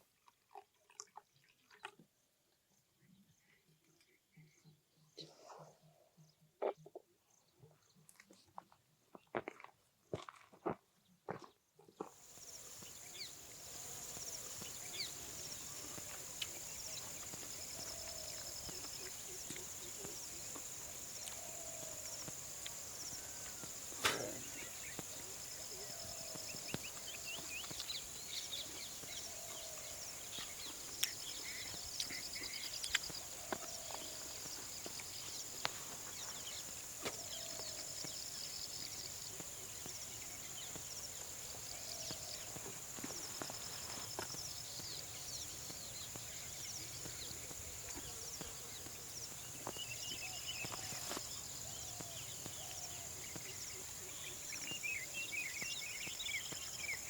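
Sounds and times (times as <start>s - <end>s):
insect trills: 12.2s - 57.0s
insects droning: 12.2s - 57.0s
bird chirps: 12.5s - 57.0s
short low call: 24.0s - 24.8s.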